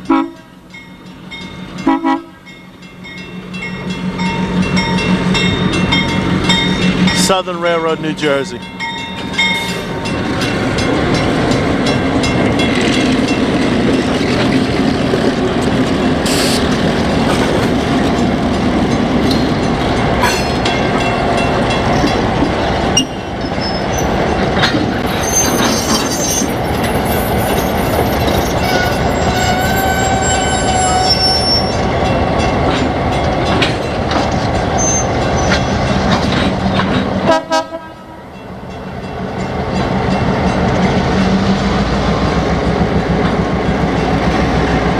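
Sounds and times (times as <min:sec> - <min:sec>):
train wheels rumbling: 0:00.0 - 0:44.9
metallic wheel squeals: 0:23.0 - 0:24.2, 0:25.0 - 0:31.9, 0:34.7 - 0:35.8.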